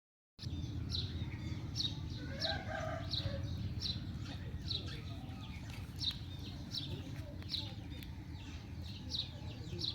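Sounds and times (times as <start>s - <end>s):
steady low rumble: 0.4s - 9.6s.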